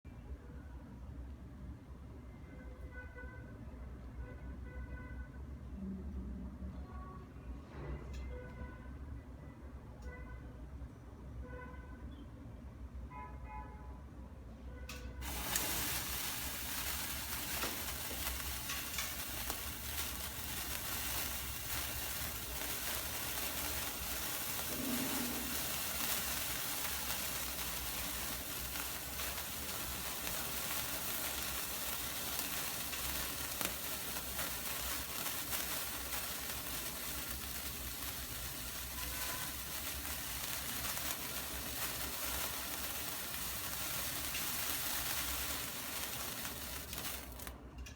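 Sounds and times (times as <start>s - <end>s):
firework fountain hissing and crackling: 15.2s - 47.6s.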